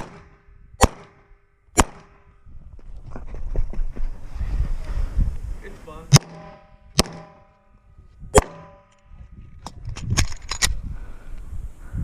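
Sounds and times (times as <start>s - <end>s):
pistol shots: 0.0s - 2.2s, 6.1s - 7.6s, 8.3s - 8.9s.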